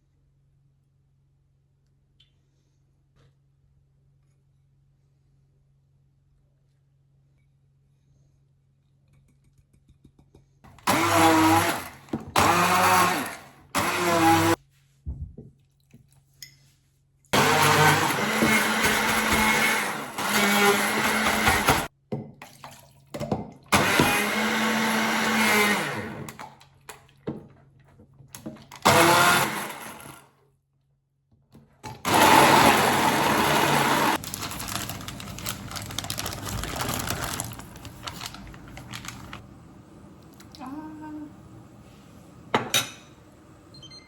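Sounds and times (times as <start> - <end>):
electric blender running: 10.7 - 14.6, 17.4 - 21.9, 23.7 - 26.4, 28.7 - 30.3, 31.9 - 41.8.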